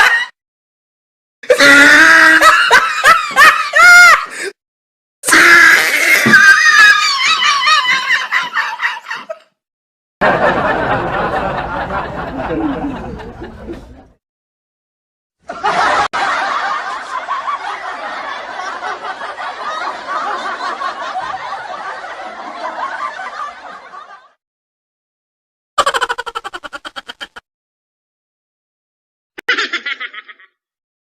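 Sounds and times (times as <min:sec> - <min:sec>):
laughter: 0:00.0 - 0:00.4, 0:02.2 - 0:04.5, 0:06.3 - 0:09.5, 0:10.2 - 0:14.2, 0:15.4 - 0:24.4, 0:25.8 - 0:27.4, 0:29.4 - 0:30.6.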